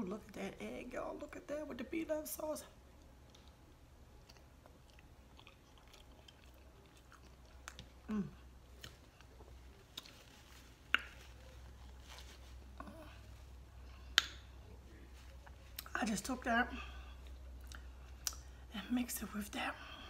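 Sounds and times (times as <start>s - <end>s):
person chewing: 2.9s - 14.5s, 17.0s - 18.6s
person humming: 8.1s - 8.4s.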